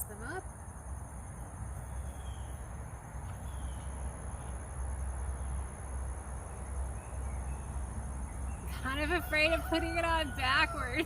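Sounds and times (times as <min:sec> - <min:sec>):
faint bird chirps: 0:01.7 - 0:04.6.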